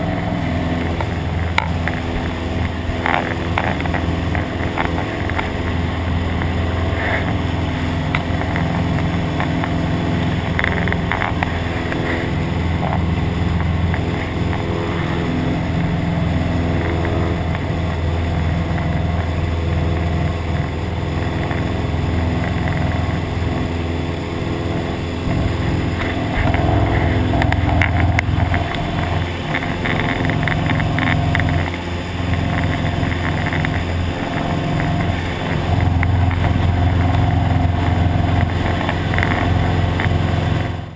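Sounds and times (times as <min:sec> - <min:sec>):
propeller plane engine drone: 0:00.0 - 0:40.9.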